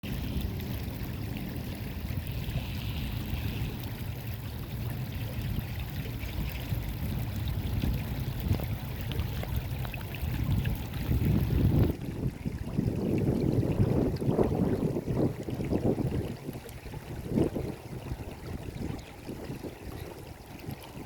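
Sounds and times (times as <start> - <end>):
stream water flowing: 0.0 - 21.0.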